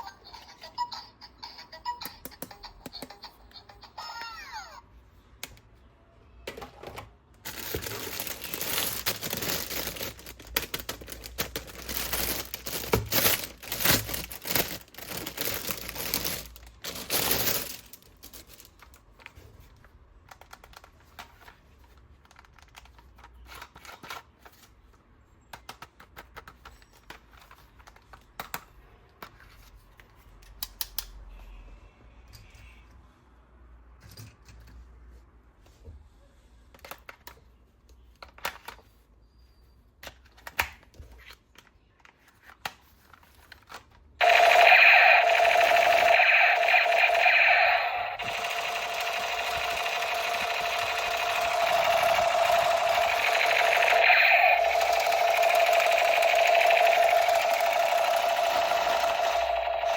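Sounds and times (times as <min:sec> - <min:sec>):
packaging crinkling and tearing: 0:07.5 - 0:19.0.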